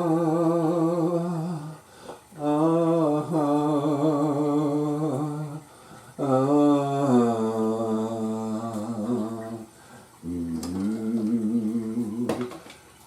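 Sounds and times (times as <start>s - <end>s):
man singing wordless ah: 0.0s - 12.6s.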